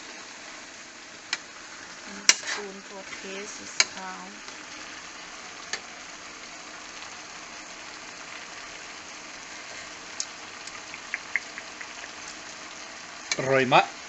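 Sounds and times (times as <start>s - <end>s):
stir-fry sizzling in a frying pan: 0.0s - 14.0s
utensil clicking against pan: 10.2s - 12.1s.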